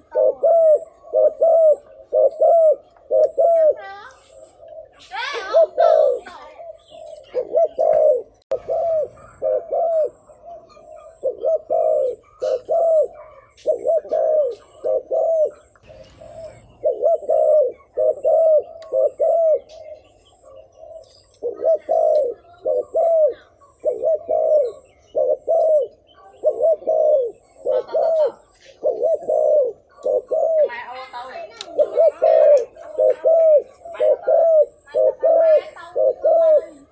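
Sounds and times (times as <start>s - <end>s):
dove cooing: 0.0s - 36.9s.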